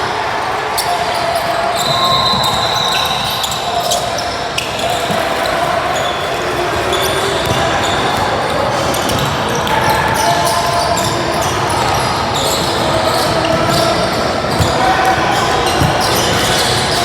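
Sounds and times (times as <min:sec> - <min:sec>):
murmur of voices: 0:00.0 - 0:17.0
basketball bouncing: 0:07.4 - 0:08.3, 0:13.6 - 0:16.7.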